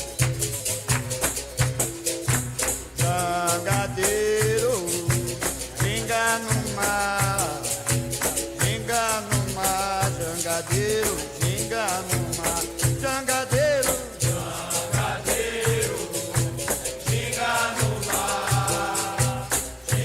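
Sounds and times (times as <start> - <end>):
rattling shaker: 0.0 - 20.0
person singing: 3.0 - 7.8, 8.5 - 14.2, 15.0 - 20.0.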